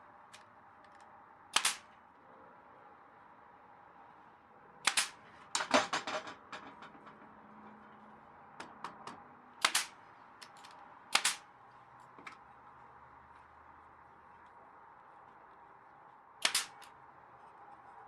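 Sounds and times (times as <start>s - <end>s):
nail gun cracks: 0.9s - 1.9s, 4.8s - 5.2s, 9.6s - 11.5s, 16.4s - 16.9s.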